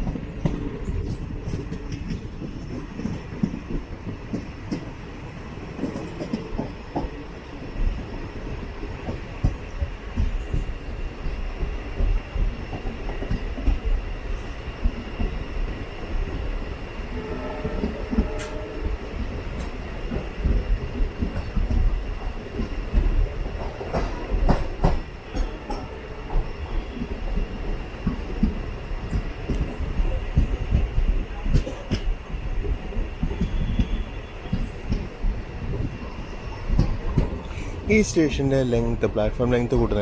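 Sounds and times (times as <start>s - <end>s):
clacks over rail joints: 0.0s - 5.0s, 5.7s - 7.2s, 9.0s - 14.0s, 17.6s - 36.0s, 36.6s - 40.0s
train wheels rumbling: 0.0s - 40.0s
wheel squealing on rail: 17.0s - 20.6s, 22.7s - 37.9s.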